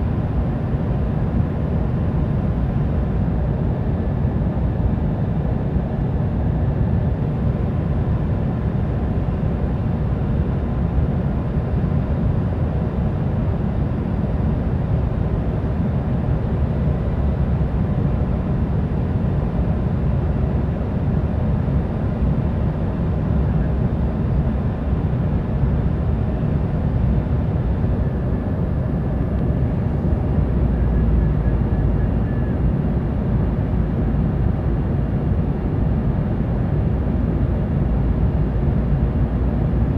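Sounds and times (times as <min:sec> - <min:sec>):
jet cabin rumble: 0:13.4 - 0:39.9.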